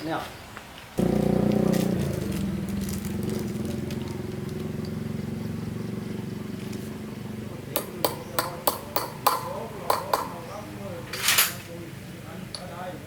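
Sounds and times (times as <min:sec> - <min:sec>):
small motorbike engine idling: 0:01.0 - 0:11.1.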